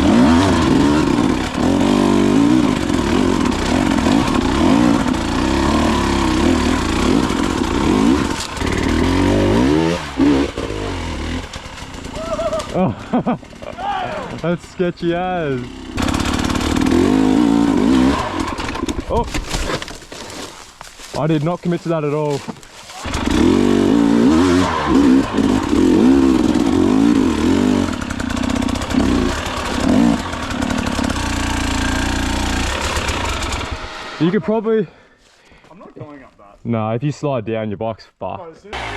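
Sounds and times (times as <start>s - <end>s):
dirt bike engine revving: 0.0s - 19.2s, 22.9s - 34.6s.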